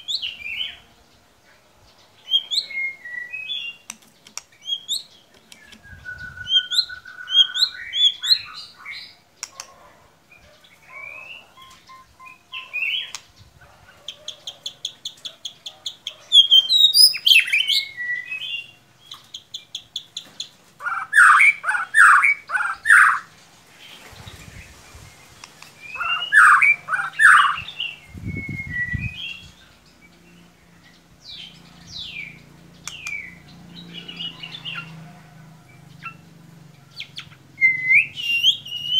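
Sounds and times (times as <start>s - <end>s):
songbird whistles and trills: 2.3s - 4.0s, 4.6s - 9.6s, 10.9s - 13.2s, 16.0s - 20.2s, 25.4s - 29.6s, 37.0s - 38.9s.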